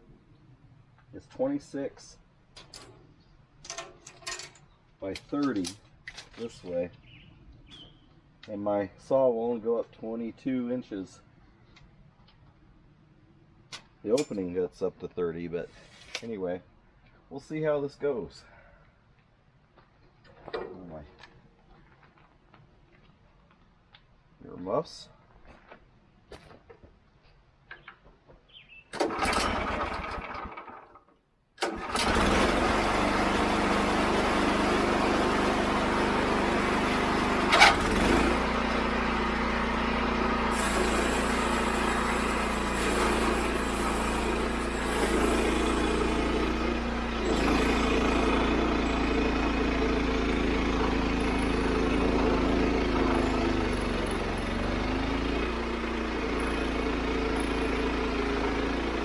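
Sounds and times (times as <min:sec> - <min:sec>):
band sawmill cutting log: 0:31.6 - 0:59.0.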